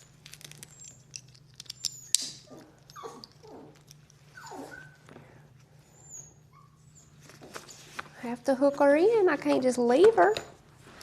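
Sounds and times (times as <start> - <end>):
dog whimpering: 1.9 - 5.0, 5.9 - 7.2.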